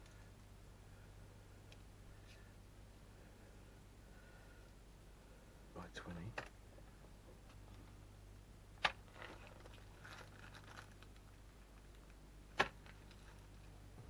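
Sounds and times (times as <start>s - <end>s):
faint rustling and scraping: 2.1s - 5.4s, 9.0s - 12.2s, 12.8s - 14.0s.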